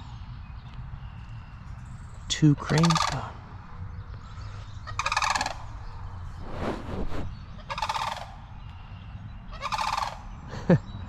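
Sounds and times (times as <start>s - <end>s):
cranes rattling calls: 2.6s - 3.4s, 4.5s - 6.0s, 7.6s - 8.5s, 9.5s - 10.3s.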